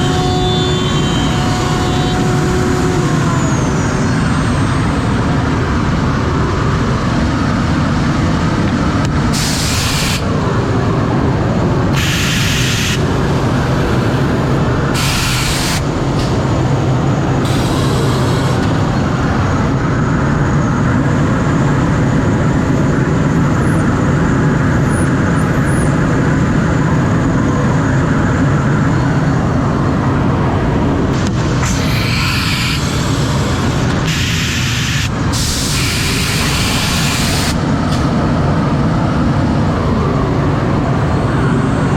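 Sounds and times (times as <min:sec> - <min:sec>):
cnc router milling wood: 0:00.0 - 0:06.8, 0:11.9 - 0:19.7, 0:31.1 - 0:37.6
high hiss bursts: 0:09.3 - 0:10.3, 0:12.0 - 0:16.5, 0:17.4 - 0:18.9, 0:31.2 - 0:37.6.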